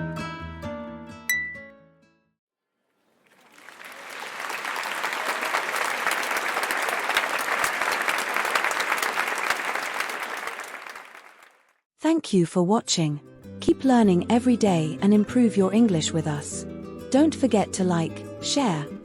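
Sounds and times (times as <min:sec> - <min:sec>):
crowd applause: 0:03.1 - 0:11.7
acoustic guitar music: 0:13.5 - 0:19.0.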